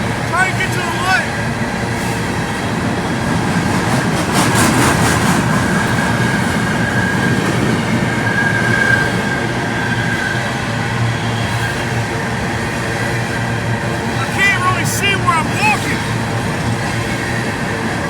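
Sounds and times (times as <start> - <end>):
train wheels rumbling on rails: 0.0 - 18.0
high wheel squeal: 5.4 - 12.1.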